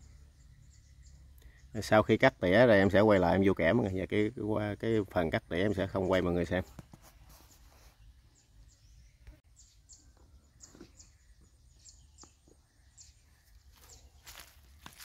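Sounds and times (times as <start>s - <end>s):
small bird chirps: 0.0s - 2.2s, 7.0s - 15.0s.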